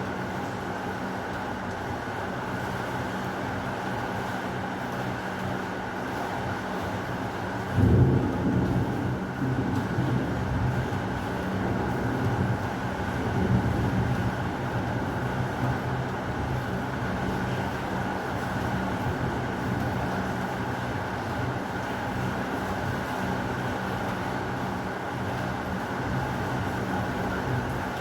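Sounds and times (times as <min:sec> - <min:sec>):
heavy rain falling: 0:00.0 - 0:28.0
rolling thunder: 0:07.8 - 0:10.8.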